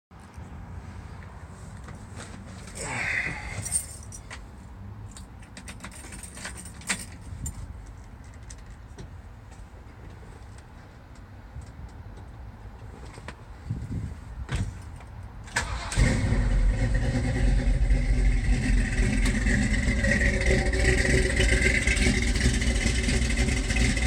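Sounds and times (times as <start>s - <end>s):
keys jangling: 3.5s - 4.3s, 5.5s - 7.6s.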